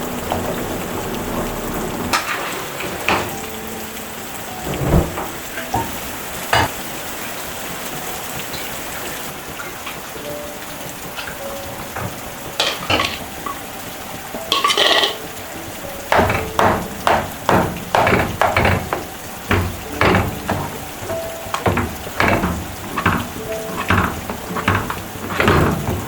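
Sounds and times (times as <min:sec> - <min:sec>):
steady hiss: 0:00.0 - 0:26.0
utensil knocks on a pot: 0:16.1 - 0:20.8.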